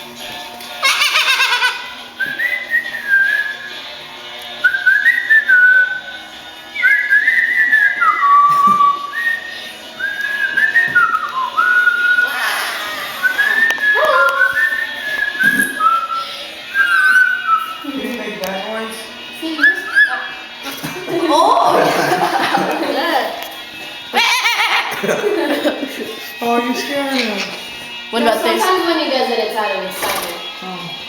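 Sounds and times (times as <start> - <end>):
parrot whistling a tune: 0.8 - 3.8, 4.6 - 6.1, 6.8 - 17.9, 19.4 - 20.7.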